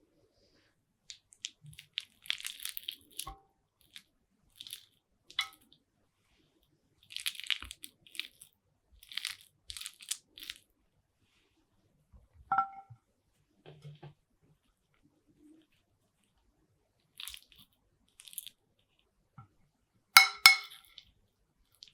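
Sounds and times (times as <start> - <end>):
spoon clinking against bowl: 20.2 - 20.8.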